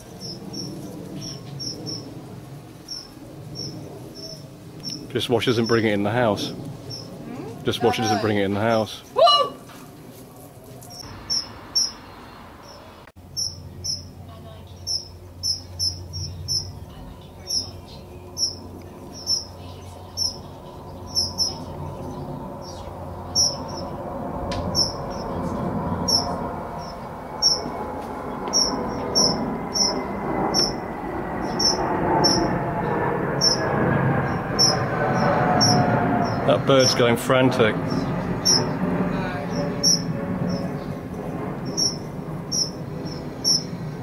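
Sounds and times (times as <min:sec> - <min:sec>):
small bird chirping frantically: 0:00.0 - 0:02.1, 0:02.8 - 0:05.8, 0:06.9 - 0:07.2, 0:10.9 - 0:23.9, 0:24.7 - 0:25.4, 0:26.0 - 0:27.8, 0:28.4 - 0:30.8, 0:31.4 - 0:32.6, 0:33.4 - 0:33.7, 0:34.3 - 0:36.5, 0:37.8 - 0:38.9, 0:39.5 - 0:41.0, 0:41.6 - 0:43.9
low hum: 0:00.0 - 0:44.0.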